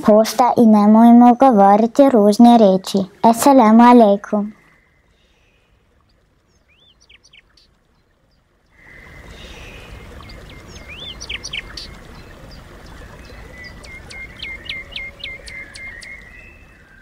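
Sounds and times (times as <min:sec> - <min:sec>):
background hiss and rumble: 0:00.0 - 0:17.0
small birds chirping: 0:03.4 - 0:17.0.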